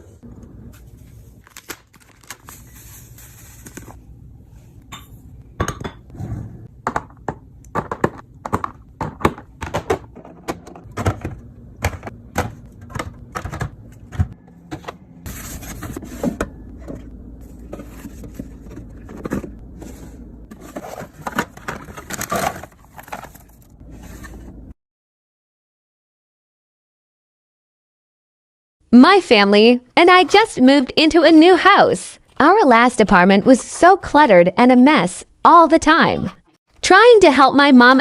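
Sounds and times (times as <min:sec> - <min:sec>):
food containers clacking and knocking: 0:06.8 - 0:15.0, 0:16.1 - 0:23.7
steady low hum: 0:10.8 - 0:20.6.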